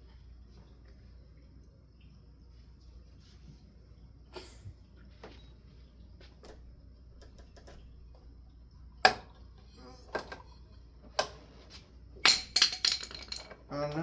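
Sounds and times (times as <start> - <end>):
screwdriver dropped clattering: 12.2 - 13.6.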